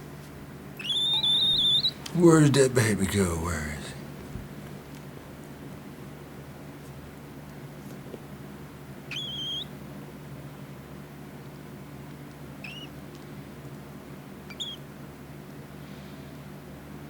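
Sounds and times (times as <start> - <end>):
cockatiel chick calling: 0.8 - 2.0, 9.1 - 9.7.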